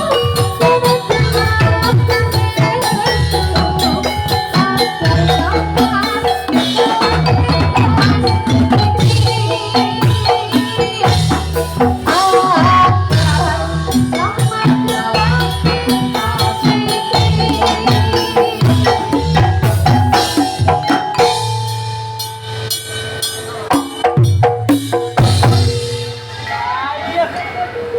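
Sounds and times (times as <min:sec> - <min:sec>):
drums beating fast: 0:00.0 - 0:27.9
held ringing tones: 0:00.0 - 0:27.9
metallophones playing: 0:00.0 - 0:27.9.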